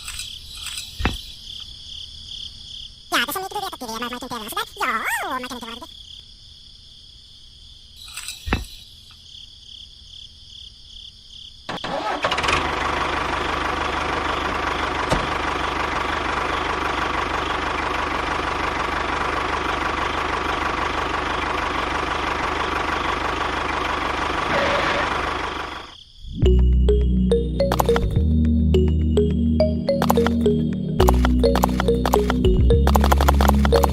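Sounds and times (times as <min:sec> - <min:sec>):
small engine running: 0:11.8 - 0:26.0, 0:30.0 - 0:33.9.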